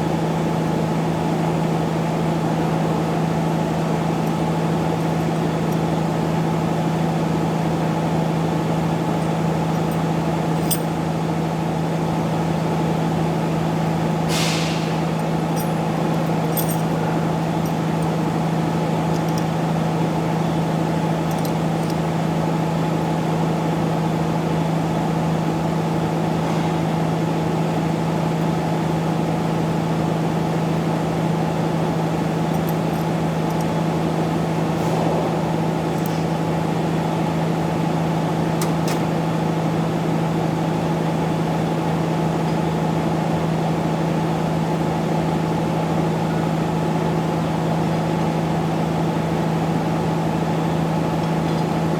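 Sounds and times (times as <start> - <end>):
short hiss: 14.3 - 14.9.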